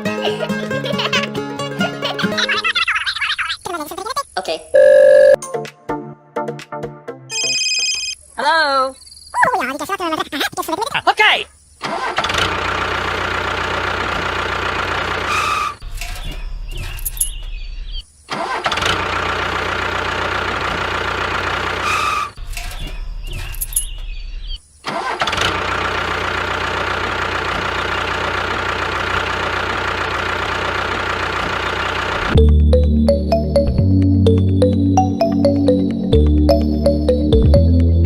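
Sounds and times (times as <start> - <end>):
engine-like running drone: 25.7 - 33.2.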